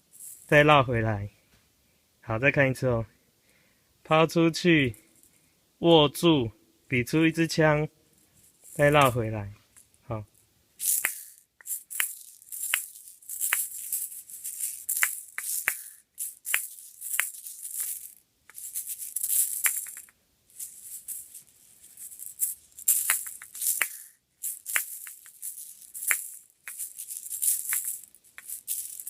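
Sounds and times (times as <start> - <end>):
toy balls rattling and clicking: 0.1 - 0.6, 8.4 - 9.2, 10.8 - 29.0.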